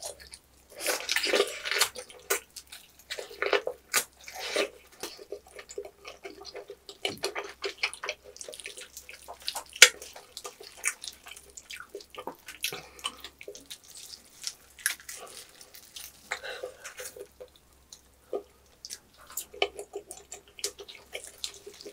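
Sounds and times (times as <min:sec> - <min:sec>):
wet chewing and lip smacking: 0:00.0 - 0:21.9.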